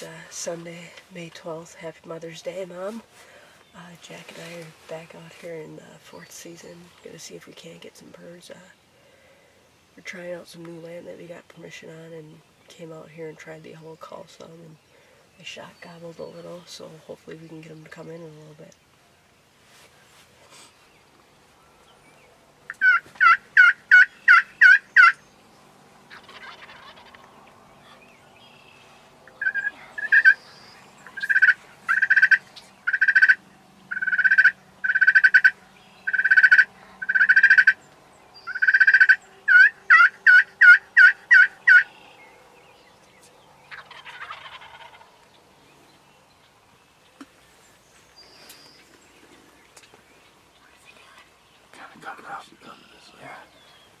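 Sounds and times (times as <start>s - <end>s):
distant turkey gobble: 22.7s - 25.2s, 26.0s - 28.0s, 29.3s - 37.8s, 38.5s - 42.2s, 43.6s - 45.2s
turkey call yelps: 22.7s - 25.2s, 26.1s - 27.6s, 29.3s - 30.4s, 31.0s - 37.8s, 38.5s - 42.1s, 43.7s - 45.1s.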